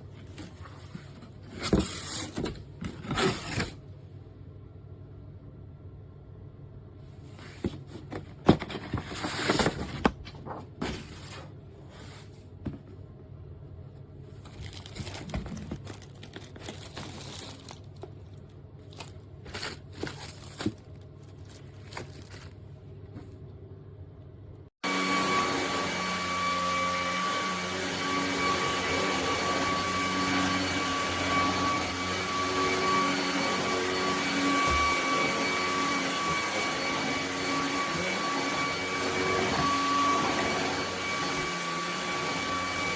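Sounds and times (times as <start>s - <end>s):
vacuum motor whining: 24.8s - 42.9s.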